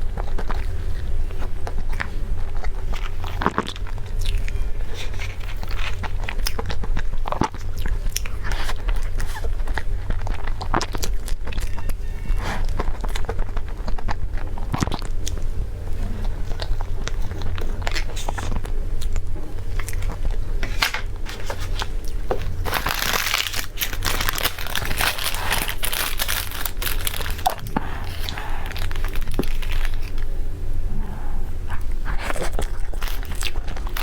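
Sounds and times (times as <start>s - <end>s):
crunchy bites: 0.0s - 30.3s, 31.7s - 34.0s
steady low hum: 0.0s - 34.0s
food packaging crinkling: 16.5s - 30.3s, 32.3s - 34.0s.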